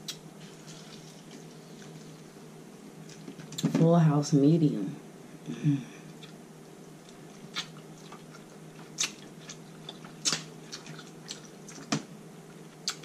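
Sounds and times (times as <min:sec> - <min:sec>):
chewing crab meat: 0:06.2 - 0:13.0
wet mouth smacks: 0:07.5 - 0:08.2, 0:09.0 - 0:11.9.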